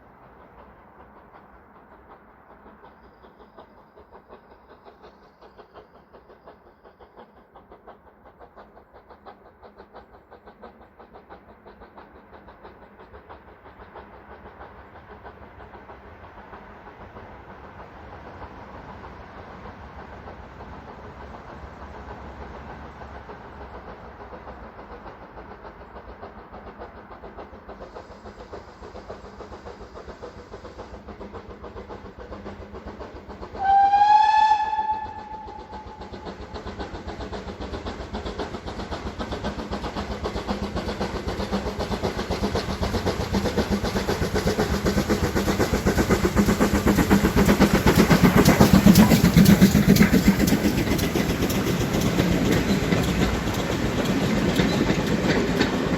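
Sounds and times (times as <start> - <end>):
steam train rhythmic running: 0.0 - 55.9
steam train whistle: 33.6 - 36.2.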